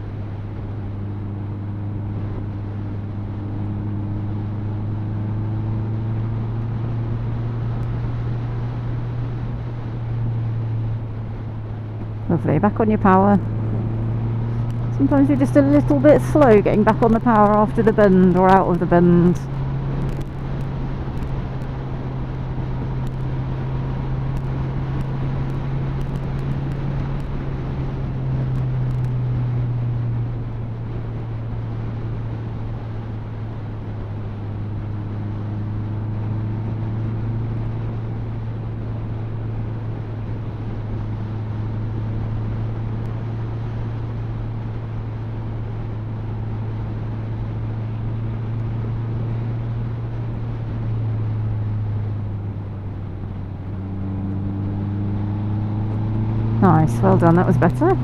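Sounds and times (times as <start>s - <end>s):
motorcycle engine cruising: 0.0s - 58.0s
road noise: 0.0s - 58.0s.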